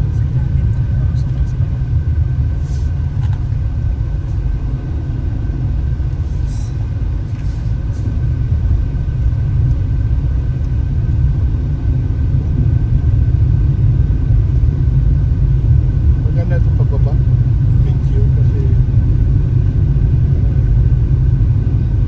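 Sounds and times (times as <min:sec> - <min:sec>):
engine and road rumble in cabin: 0:00.0 - 0:22.0.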